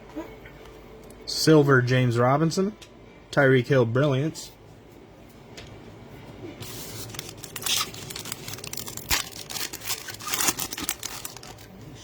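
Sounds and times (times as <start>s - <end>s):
plastic wrapper tearing and crinkling: 6.6s - 12.0s.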